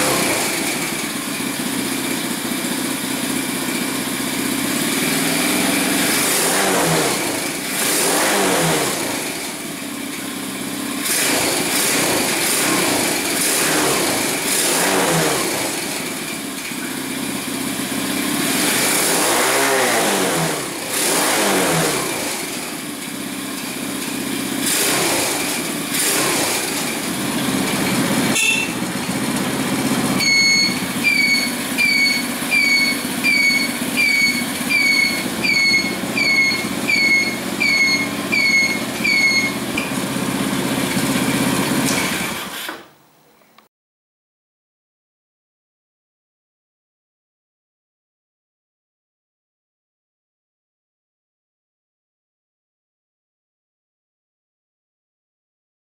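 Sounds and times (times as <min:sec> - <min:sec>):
engine revving: 0:00.0 - 0:01.6, 0:04.2 - 0:10.1, 0:10.9 - 0:42.6
short high falling beeps: 0:30.2 - 0:39.6.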